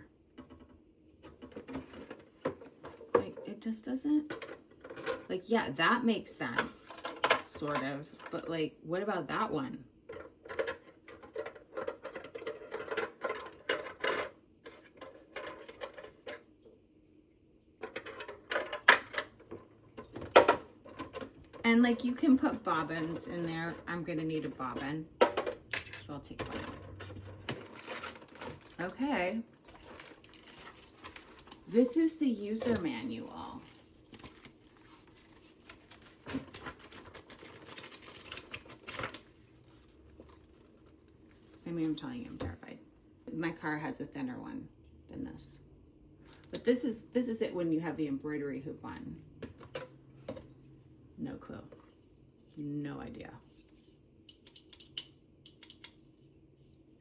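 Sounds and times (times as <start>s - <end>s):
plastic pieces clicking and rattling: 10.1s - 16.4s
paper pages rustling: 29.6s - 41.6s.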